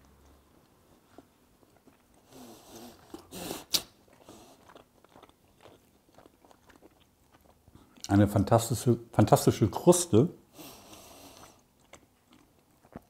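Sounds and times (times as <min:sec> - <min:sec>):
person chewing crunchy steak: 0:00.1 - 0:08.1, 0:10.8 - 0:13.0.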